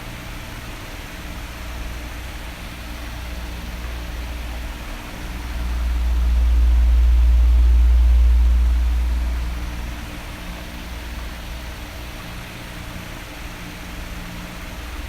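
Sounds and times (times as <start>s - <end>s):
electric fan whooshing: 1.1s - 15.0s
low rumble of moving air: 1.4s - 12.7s.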